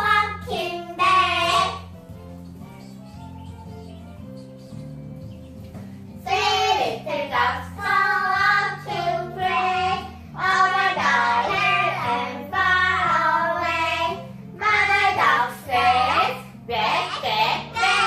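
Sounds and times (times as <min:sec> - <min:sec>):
child singing: 0:00.0 - 0:01.8, 0:06.3 - 0:18.0.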